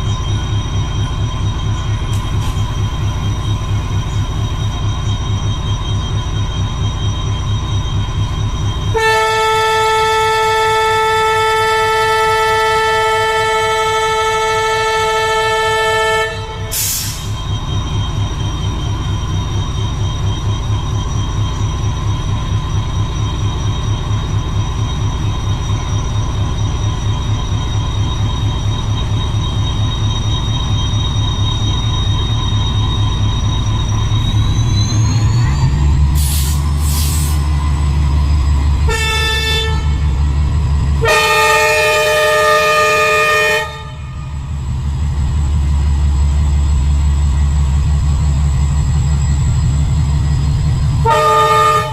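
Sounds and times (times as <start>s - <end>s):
locomotive rhythmic pulsing: 0.0s - 51.9s
locomotive horn: 8.9s - 17.3s, 38.8s - 40.3s, 40.9s - 44.4s, 51.0s - 51.9s
air hiss: 36.2s - 37.5s.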